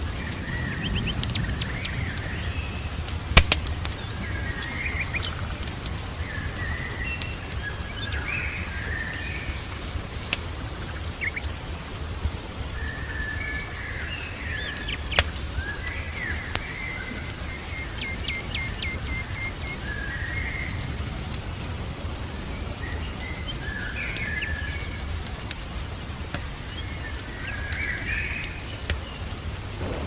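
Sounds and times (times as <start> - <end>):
small birds singing and chirping: 0.0 - 25.2, 26.0 - 30.0
fireplace fire crackling and popping: 0.0 - 30.0
low rumble: 29.7 - 30.0.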